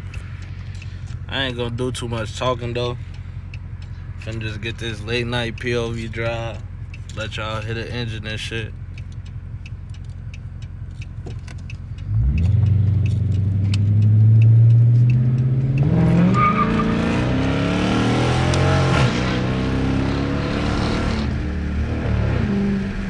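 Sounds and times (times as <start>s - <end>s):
loud car engine accelerating: 8.8s - 23.0s.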